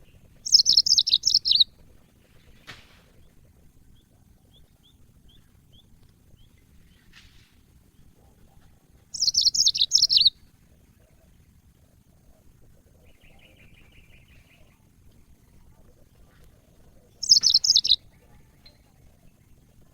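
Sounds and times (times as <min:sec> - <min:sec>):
canary chirps: 0:00.0 - 0:01.8, 0:09.1 - 0:10.5, 0:16.2 - 0:19.7
faint bird trill: 0:00.0 - 0:02.2, 0:09.1 - 0:11.4, 0:13.0 - 0:19.9
canary song: 0:00.0 - 0:19.9.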